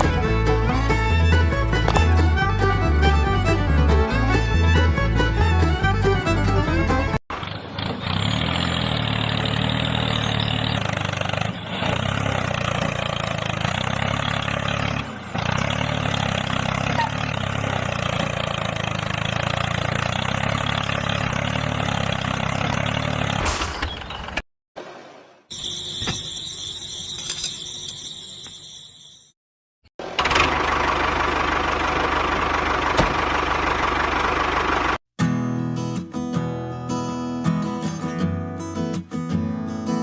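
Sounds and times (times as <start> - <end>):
mini tractor motor running: 30.0 - 35.0.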